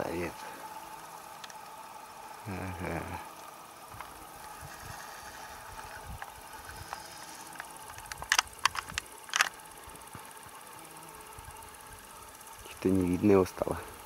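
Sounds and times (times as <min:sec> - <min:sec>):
sharp clicks or snaps: 0:07.6 - 0:09.6.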